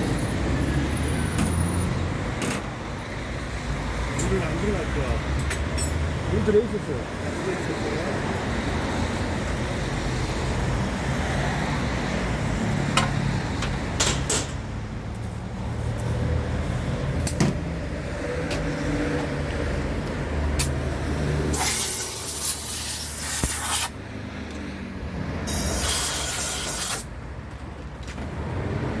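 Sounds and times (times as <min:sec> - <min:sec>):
bursts of hissing: 0:21.5 - 0:24.0, 0:25.5 - 0:27.1.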